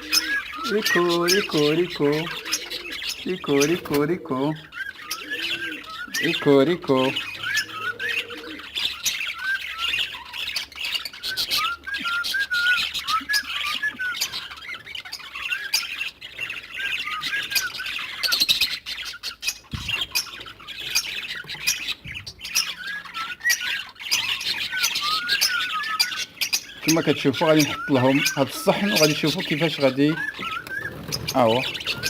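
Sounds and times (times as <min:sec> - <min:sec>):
birds squawking and chirping: 0:00.0 - 0:32.0
high twittering chatter: 0:21.9 - 0:32.0.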